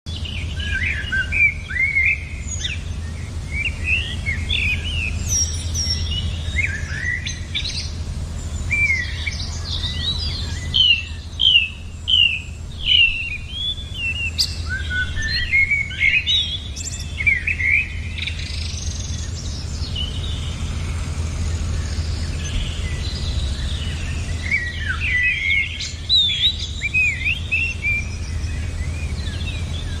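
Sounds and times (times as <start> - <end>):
small birds chirping: 0.1 - 30.0
steady low rumble: 0.1 - 30.0.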